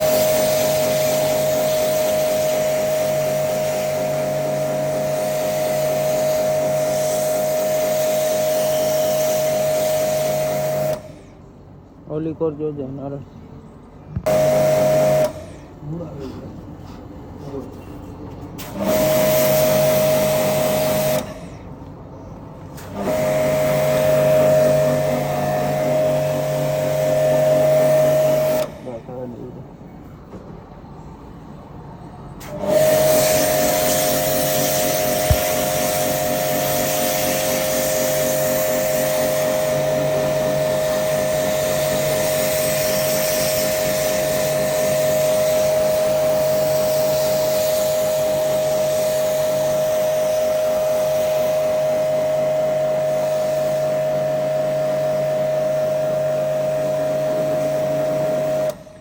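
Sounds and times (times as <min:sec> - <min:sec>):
hiss of water spray: 0:00.0 - 0:11.1, 0:32.8 - 0:51.9
pressure washer motor hum and whine: 0:00.0 - 0:11.3, 0:14.2 - 0:15.7, 0:18.6 - 0:21.6, 0:22.8 - 0:28.9, 0:32.4 - 0:59.0
machine motor whining: 0:32.5 - 0:42.8.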